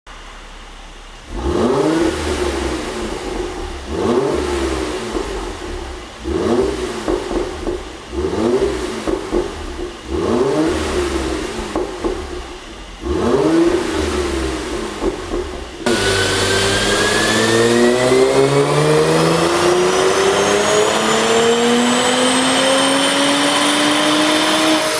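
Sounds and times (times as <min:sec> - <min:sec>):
car engine revving: 0:00.9 - 0:24.9
exhaust pops and crackles: 0:04.8 - 0:17.2.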